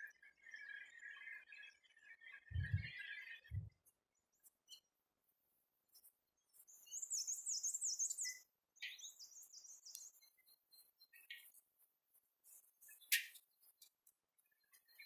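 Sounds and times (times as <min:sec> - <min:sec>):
songbird high chirping: 0:05.9 - 0:15.0.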